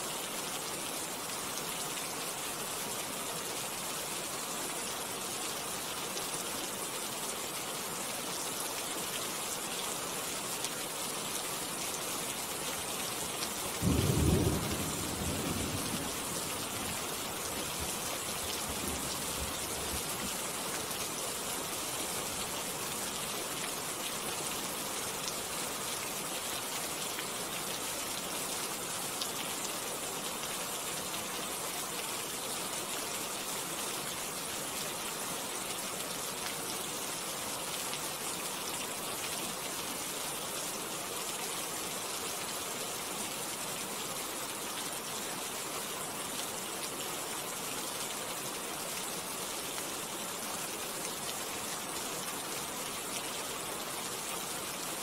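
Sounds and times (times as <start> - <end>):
steady rain: 0.0 - 55.0
low rumble of thunder: 13.8 - 17.0.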